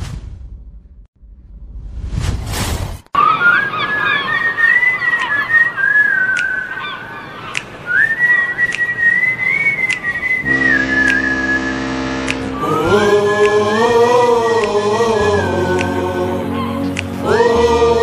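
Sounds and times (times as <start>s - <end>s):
whistled melody: 3.3s - 6.7s, 7.9s - 16.0s
held chord: 10.4s - 18.0s.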